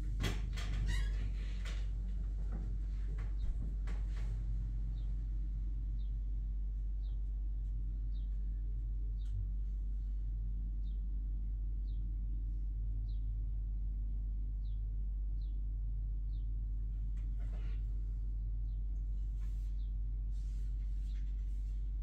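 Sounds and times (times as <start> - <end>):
steady low rumble: 0.0 - 22.0
bird chirping: 10.8 - 11.0, 14.6 - 14.8.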